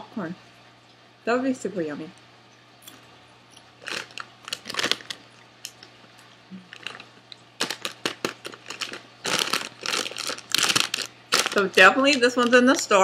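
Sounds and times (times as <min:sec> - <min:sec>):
popcorn crunching: 0:03.6 - 0:12.9.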